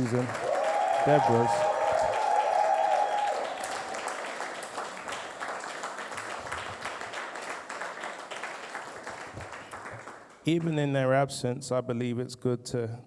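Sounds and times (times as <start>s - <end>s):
congregation applauding: 0.0s - 10.8s.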